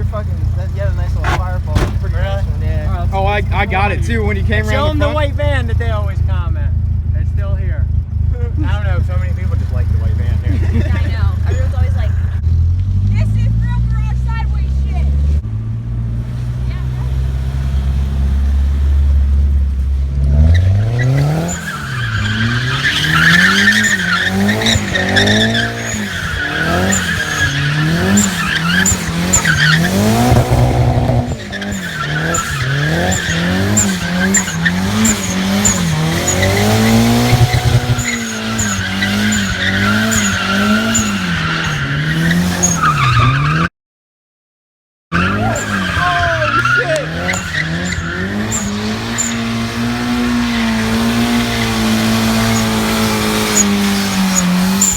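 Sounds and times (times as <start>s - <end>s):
tyres squealing: 0.0s - 5.9s, 20.3s - 43.7s, 45.2s - 54.9s
car engine revving: 0.0s - 43.7s, 45.1s - 54.9s.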